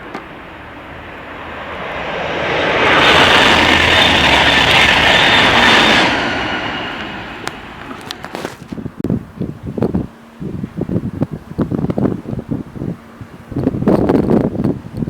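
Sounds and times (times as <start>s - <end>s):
train passing by: 0.0s - 9.0s.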